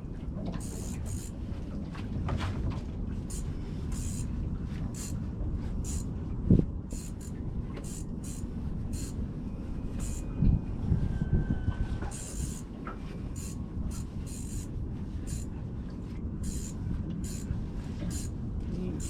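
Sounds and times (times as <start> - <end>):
boat rumble on water: 0.0 - 19.0
fishing reel clicking: 0.6 - 1.3, 3.3 - 4.3, 5.0 - 5.2, 5.8 - 6.1, 6.9 - 9.2, 10.0 - 10.3, 12.1 - 12.7, 13.4 - 15.5, 16.4 - 17.5, 18.1 - 18.3.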